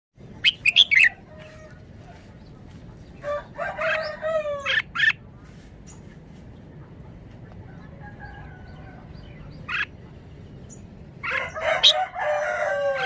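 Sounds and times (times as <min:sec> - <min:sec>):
rooster crowing: 0:03.2 - 0:04.8, 0:11.2 - 0:13.0.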